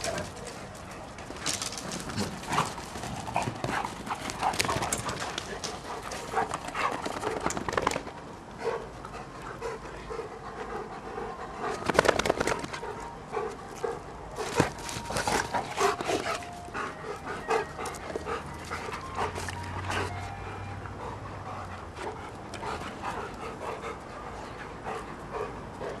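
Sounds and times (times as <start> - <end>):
dogs tussling: 0.0 - 8.1, 11.8 - 12.8.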